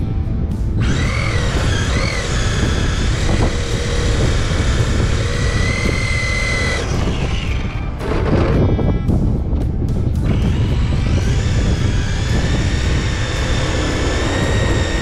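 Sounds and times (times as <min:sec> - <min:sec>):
rush of noise: 0:00.0 - 0:15.0
electric motor whining: 0:00.8 - 0:09.4, 0:10.1 - 0:15.0.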